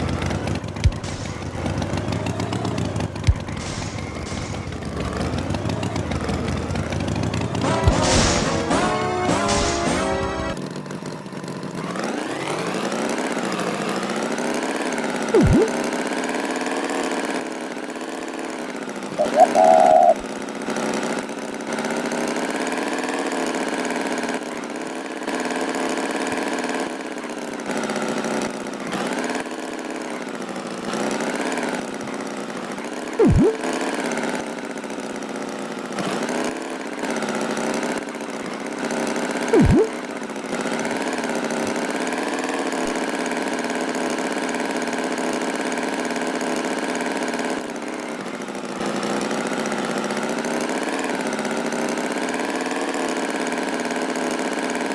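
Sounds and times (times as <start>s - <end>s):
cartoon tractor engine idling: 0.0s - 14.4s, 18.7s - 21.0s
sound effect sliding down in pitch: 15.4s - 15.8s, 19.2s - 20.2s, 33.2s - 33.6s, 39.6s - 40.0s.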